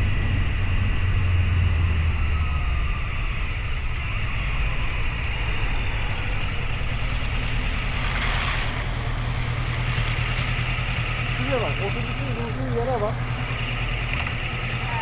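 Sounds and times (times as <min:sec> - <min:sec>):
wind noise: 0:00.0 - 0:10.4
motorcycle engine running: 0:00.0 - 0:15.0.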